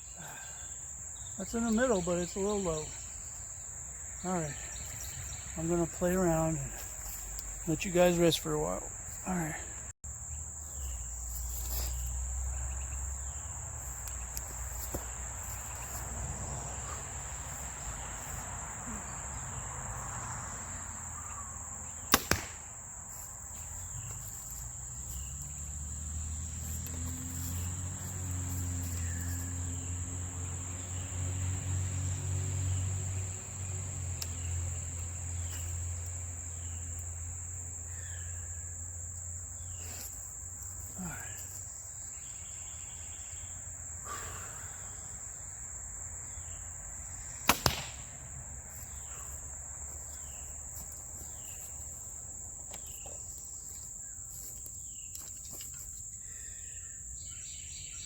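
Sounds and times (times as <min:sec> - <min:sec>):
crickets chirring: 0:00.0 - 0:58.0
arrow hitting target smack: 0:22.1 - 0:22.7, 0:47.4 - 0:48.1.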